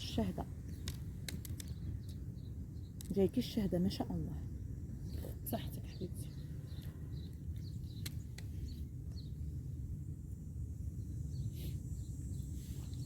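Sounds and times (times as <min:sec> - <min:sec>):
sharp clicks: 0:00.7 - 0:01.8, 0:07.6 - 0:08.5.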